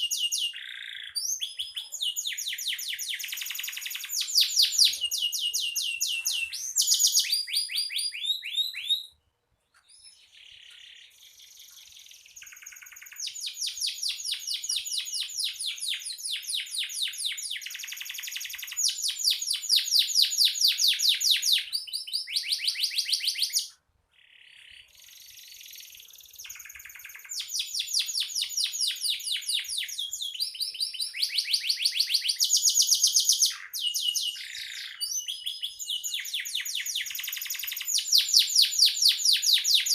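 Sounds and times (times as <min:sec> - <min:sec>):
canary trilling song: 0:00.0 - 0:39.9.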